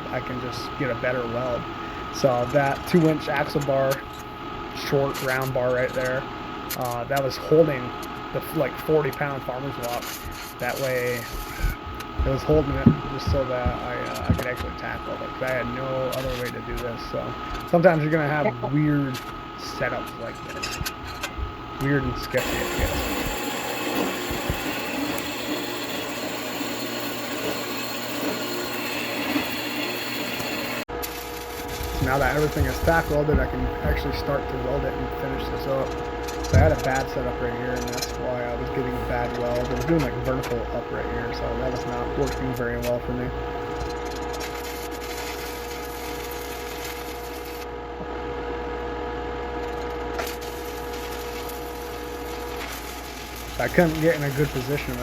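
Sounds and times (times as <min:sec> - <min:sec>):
electrical hum: 0:00.0 - 0:47.8, 0:49.7 - 0:55.0
welding arc crackling and hissing: 0:04.8 - 0:30.8, 0:31.6 - 0:43.9, 0:50.5 - 0:55.0.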